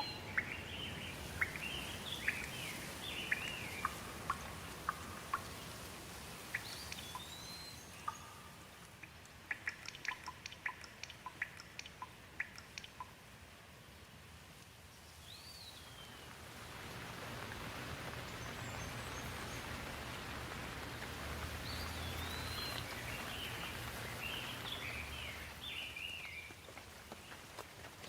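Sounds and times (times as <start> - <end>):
birds chirping: 0.0 - 13.1, 15.0 - 27.5
steady rainfall: 0.0 - 28.0.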